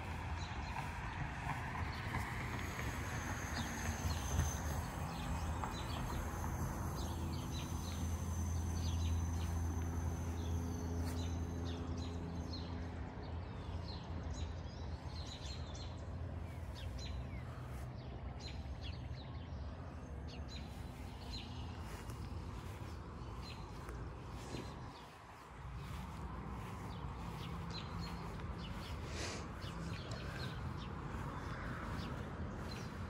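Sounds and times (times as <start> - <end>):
low steady rumble: 0.0 - 18.8
songbirds chirping: 0.0 - 33.0.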